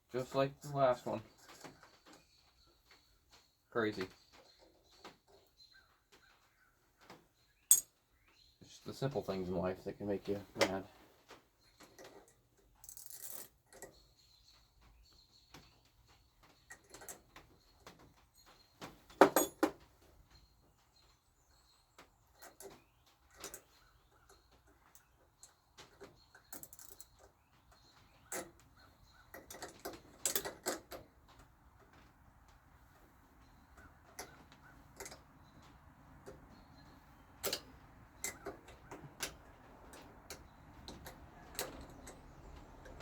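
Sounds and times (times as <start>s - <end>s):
hand tools clinking on metal: 7.7s - 8.0s, 19.2s - 19.7s.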